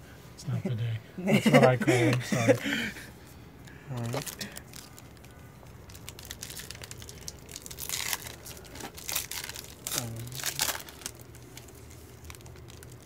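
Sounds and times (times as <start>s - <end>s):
foil wrapper tearing and crinkling: 3.9s - 13.0s.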